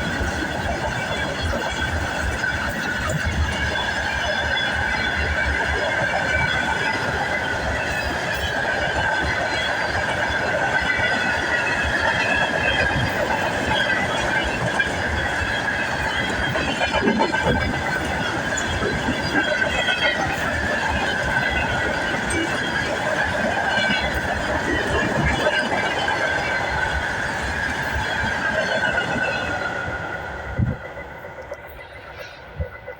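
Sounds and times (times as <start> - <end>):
rumble of train cars: 0.0 - 32.9
train wheel squeal: 0.0 - 32.9.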